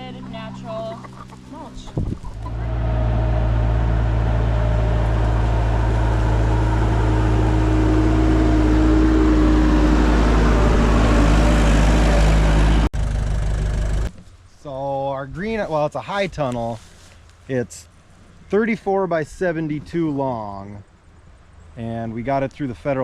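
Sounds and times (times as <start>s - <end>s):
vehicle engine running: 0.0s - 14.2s.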